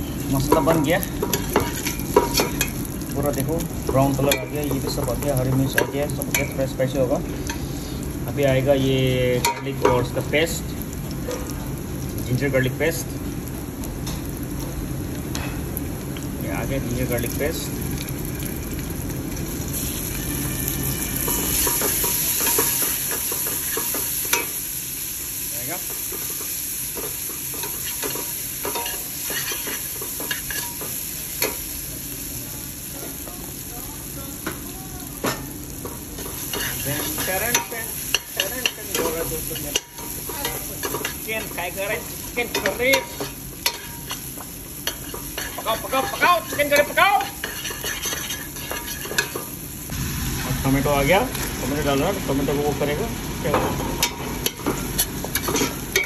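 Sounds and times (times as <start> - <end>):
onions sizzling in hot oil: 0.0 - 56.0
spoon scraping a metal pot: 44.9 - 49.3.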